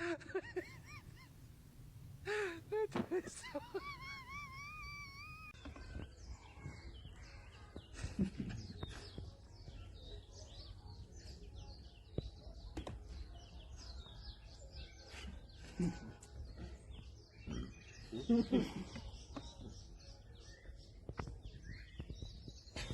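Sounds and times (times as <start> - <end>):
small birds chirping: 0.0 - 22.9.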